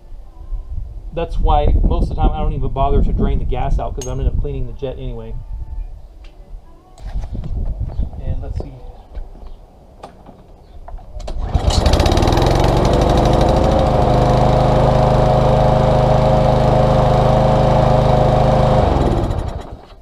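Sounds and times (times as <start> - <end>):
lawn mower engine running: 11.2 - 20.0
lawn mower pull start: 11.2 - 20.0.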